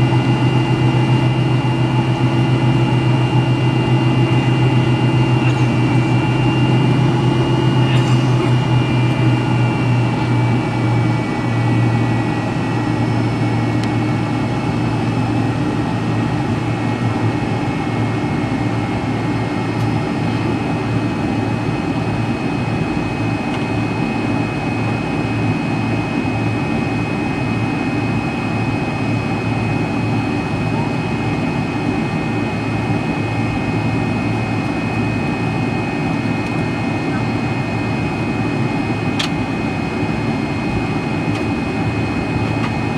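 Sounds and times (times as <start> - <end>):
jet engine high whine: 0.0 - 42.9
jet engines low hum: 0.0 - 42.9.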